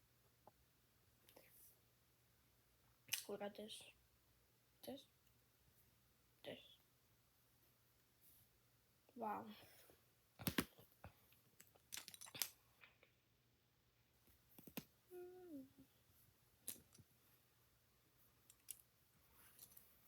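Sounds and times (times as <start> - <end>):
plastic bricks clicking together: 11.6 - 12.6, 18.5 - 18.8.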